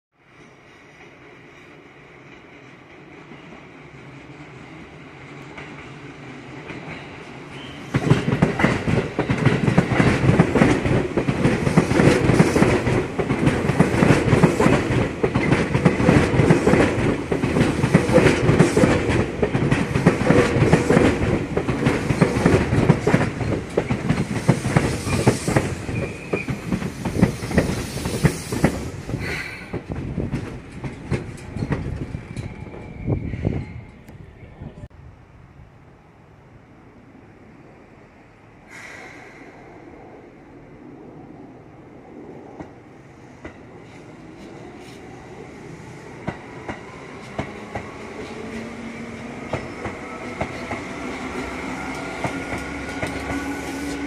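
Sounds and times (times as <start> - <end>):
train wheels clattering over rail joints: 7.9 - 33.0.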